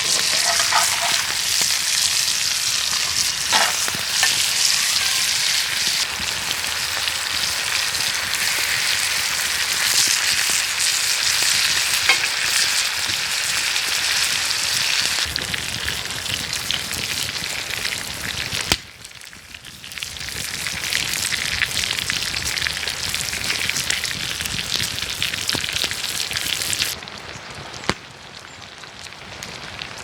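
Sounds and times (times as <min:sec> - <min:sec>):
food sizzling in a pan: 0:00.0 - 0:30.0.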